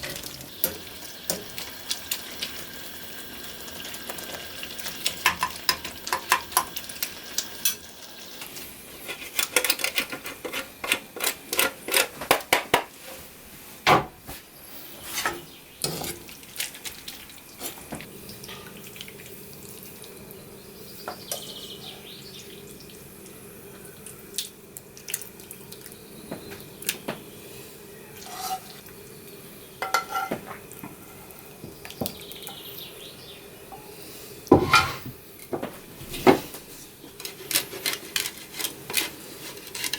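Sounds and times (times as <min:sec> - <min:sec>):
dishes and cutlery clinking: 0:29.8 - 0:30.5, 0:34.6 - 0:35.1.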